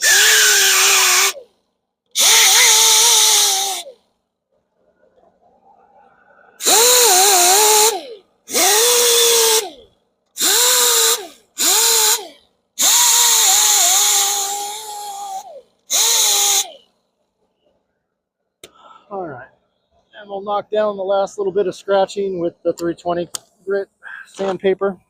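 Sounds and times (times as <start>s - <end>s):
power grinder whining: 0.0s - 1.4s, 2.2s - 4.0s, 6.6s - 16.8s.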